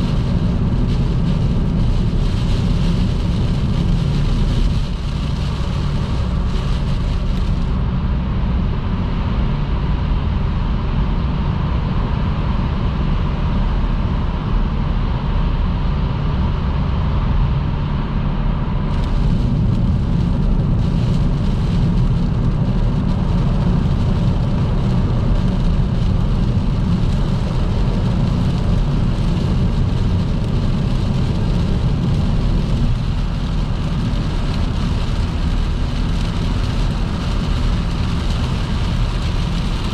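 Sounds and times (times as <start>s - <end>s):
rain hiss: 0.0s - 7.8s, 18.9s - 39.9s
tyre and road noise on wet road: 0.0s - 39.9s.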